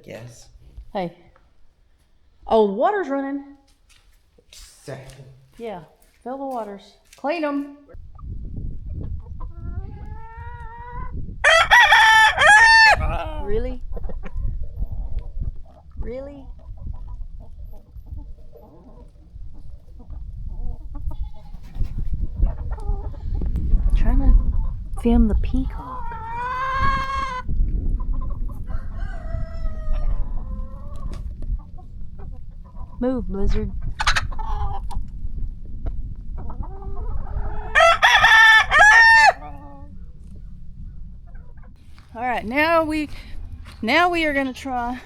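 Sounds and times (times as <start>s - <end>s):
chickens clucking: 7.8s - 45.0s
rooster crowing: 11.4s - 13.1s, 28.7s - 30.4s, 37.6s - 39.5s.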